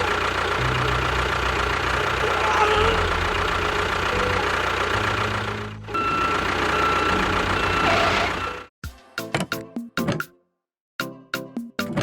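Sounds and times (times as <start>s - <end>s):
engine idling with knock: 0.0s - 7.8s.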